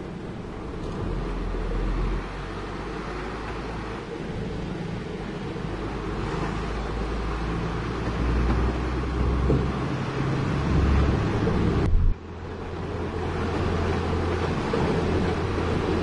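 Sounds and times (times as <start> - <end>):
heavy diesel engine running: 0.0 - 16.0
quieter engine: 0.0 - 16.0.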